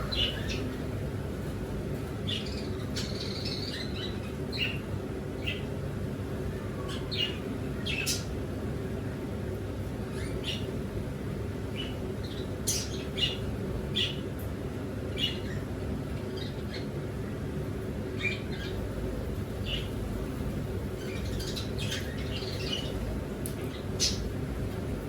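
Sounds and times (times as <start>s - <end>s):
birds chirping and squawking: 0.0s - 1.0s, 19.6s - 23.1s
steady low hum: 0.0s - 25.0s.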